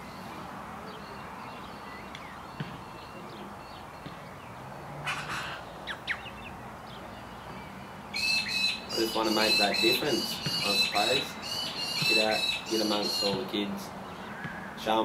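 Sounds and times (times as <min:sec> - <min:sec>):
birds chirping: 0:00.0 - 0:15.0
outdoor background hiss: 0:00.0 - 0:15.0
harsh bird call: 0:05.0 - 0:06.5, 0:08.1 - 0:14.8.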